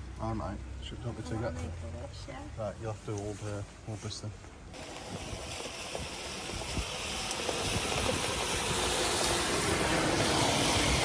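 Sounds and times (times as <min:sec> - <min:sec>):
wind rumbling on microphone: 0:04.7 - 0:11.0.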